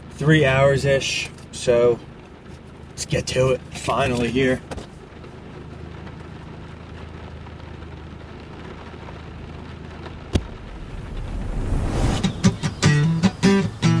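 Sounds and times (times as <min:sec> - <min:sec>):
rain falling: 0:00.0 - 0:14.0
low hum: 0:08.8 - 0:14.0.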